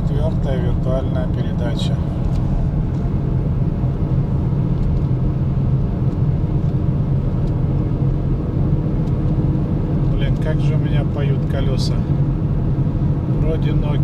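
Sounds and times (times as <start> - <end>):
car engine hum: 0.0 - 14.0.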